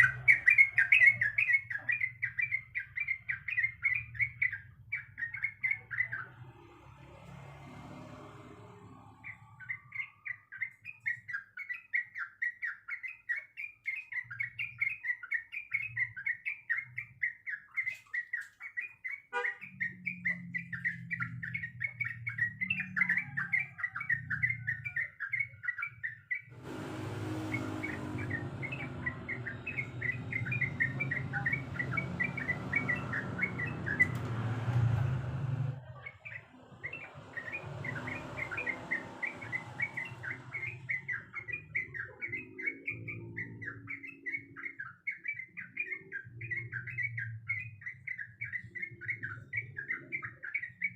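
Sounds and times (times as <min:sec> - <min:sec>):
bird singing chattering notes: 0:00.0 - 0:06.4, 0:09.2 - 0:50.9
steady rushing noise: 0:26.6 - 0:34.2.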